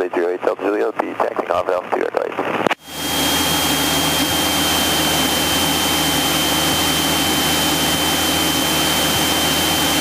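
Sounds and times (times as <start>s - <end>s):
aircraft engine and propeller drone: 2.8s - 10.0s.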